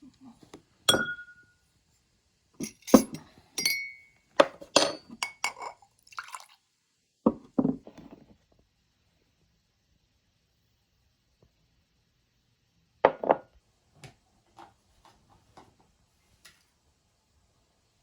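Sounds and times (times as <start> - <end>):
kitchenware clinking: 0.9 - 1.5, 2.6 - 5.8.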